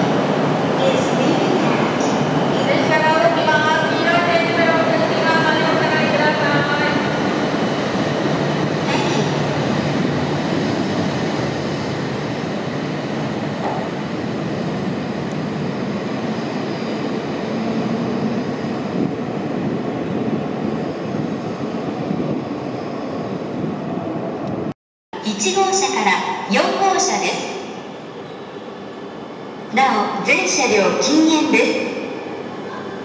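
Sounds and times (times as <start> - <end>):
train rumbling on rails: 0.0 - 24.8.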